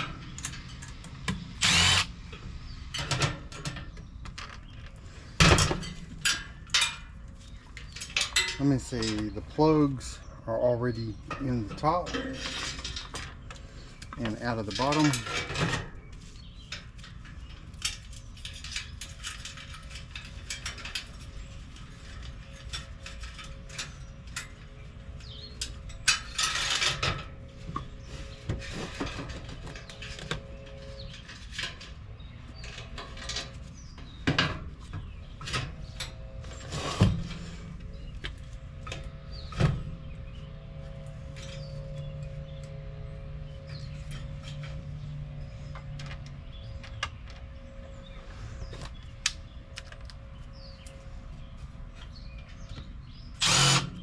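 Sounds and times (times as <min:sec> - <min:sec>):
clicks and scrapes on metal parts: 0:11.3 - 0:15.9, 0:43.6 - 0:47.5.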